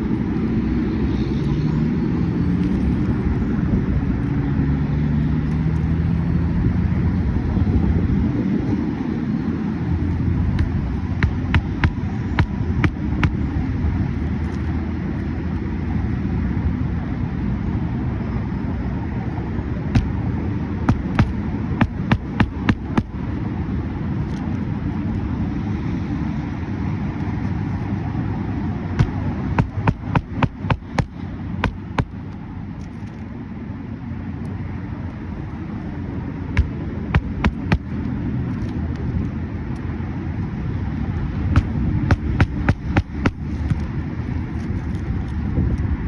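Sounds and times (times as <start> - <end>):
steady low rumble: 7.4 - 14.4, 19.2 - 25.2, 29.0 - 32.9, 36.4 - 39.2, 40.4 - 46.0
sharp tool knocks on roof: 10.6 - 13.4, 20.0 - 20.2, 20.9 - 23.2, 29.0 - 32.2, 36.6 - 37.9, 41.6 - 43.8.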